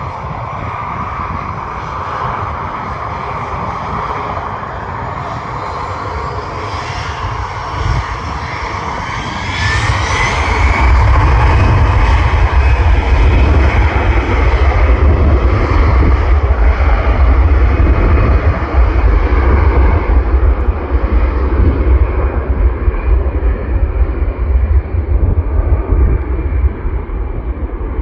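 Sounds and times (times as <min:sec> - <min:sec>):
airliner engines passing: 0:00.0 - 0:28.0.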